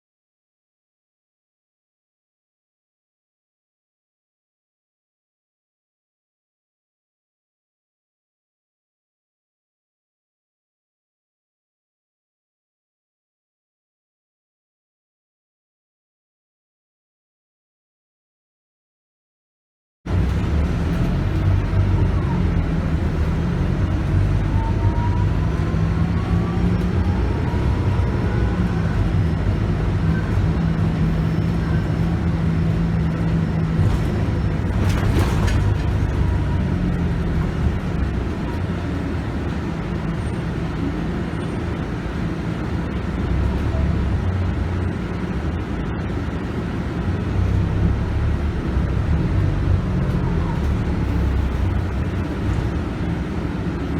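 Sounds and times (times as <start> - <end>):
bus diesel engine: 20.1 - 53.9
road noise: 20.1 - 53.9.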